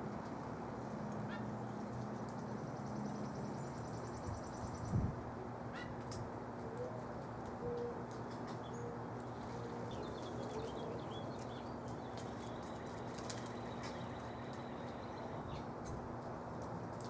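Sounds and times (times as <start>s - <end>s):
low outdoor hum: 0.0s - 17.0s
small birds chirping: 8.2s - 15.7s.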